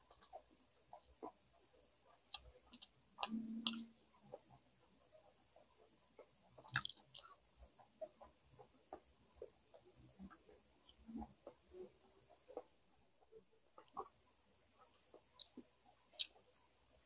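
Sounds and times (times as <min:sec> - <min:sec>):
mouth clicks and chewing smacks: 0:02.1 - 0:04.7, 0:05.6 - 0:12.8, 0:13.7 - 0:14.2, 0:14.8 - 0:16.6.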